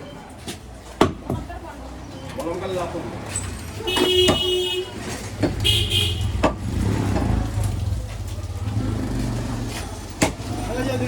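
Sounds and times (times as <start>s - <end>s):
low traffic rumble: 0.0s - 11.0s
vehicle horn: 3.8s - 6.5s.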